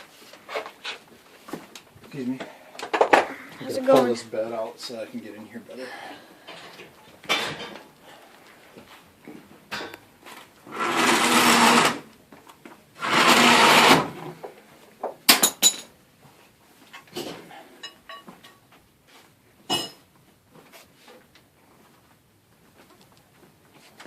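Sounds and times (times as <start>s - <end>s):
power drill running: 10.7s - 12.1s, 13.0s - 14.2s.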